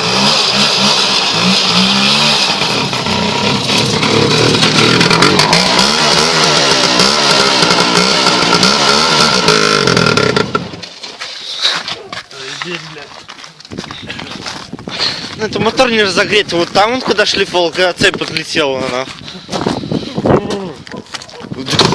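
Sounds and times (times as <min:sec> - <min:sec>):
two-stroke motorcycle engine revving: 0:00.0 - 0:10.8, 0:21.6 - 0:21.9.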